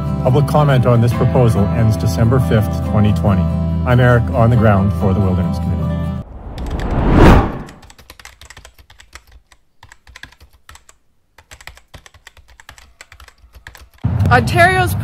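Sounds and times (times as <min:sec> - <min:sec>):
loud whoosh: 0:06.2 - 0:07.8
keyboard typing: 0:07.7 - 0:14.0.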